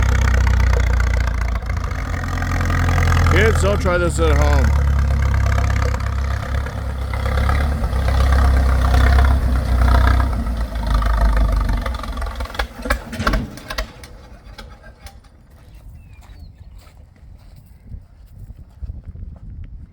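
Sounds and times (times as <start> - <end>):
engine knocking: 0.0 - 15.4
tractor engine rumbling: 0.0 - 17.8.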